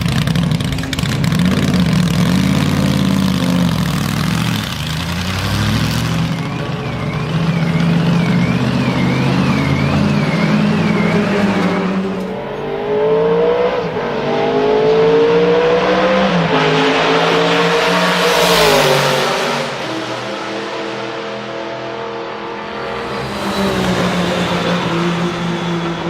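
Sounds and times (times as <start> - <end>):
car exhaust accelerating: 0.0 - 20.0.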